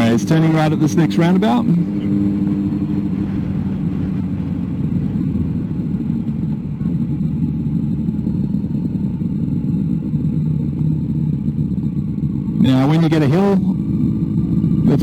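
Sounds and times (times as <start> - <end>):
motorcycle engine: 0.0 - 15.0
wind and road noise: 0.0 - 15.0.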